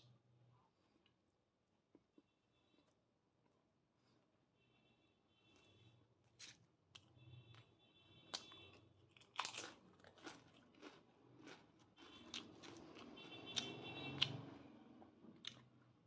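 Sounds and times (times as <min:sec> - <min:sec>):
person chewing crunchy food: 0:08.3 - 0:14.6, 0:15.4 - 0:16.0.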